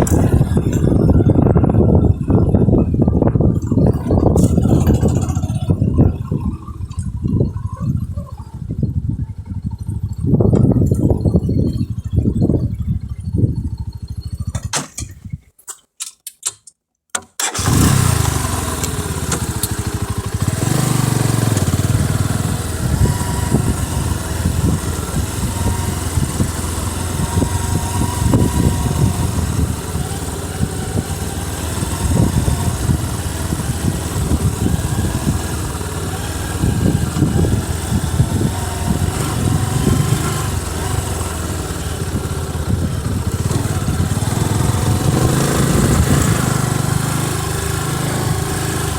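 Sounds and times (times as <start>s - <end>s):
motorcycle engine running: 0.0s - 14.7s, 17.6s - 48.9s
short clicks: 14.6s - 17.5s.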